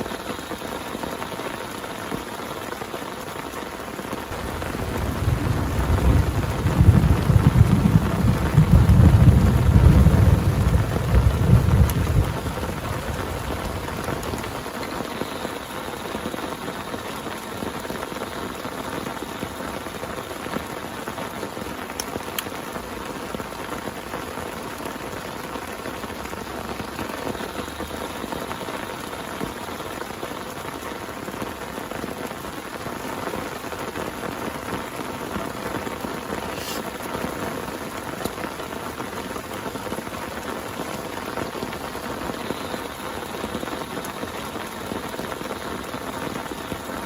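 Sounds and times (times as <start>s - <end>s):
heavy rain pattering: 0.0s - 47.0s
low thunder rumble: 4.3s - 14.7s.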